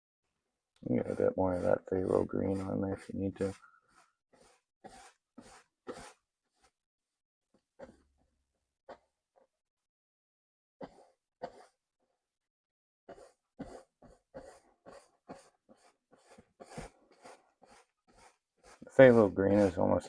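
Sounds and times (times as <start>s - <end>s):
paintbrush strokes on canvas: 0.9s - 6.8s, 13.1s - 20.0s.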